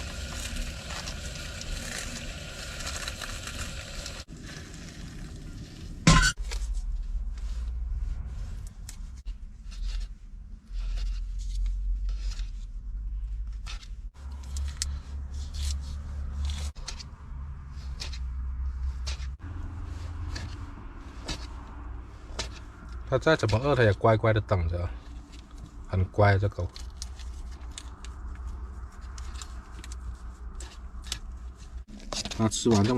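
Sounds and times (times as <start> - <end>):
hands handling food and containers: 8.8 - 32.9.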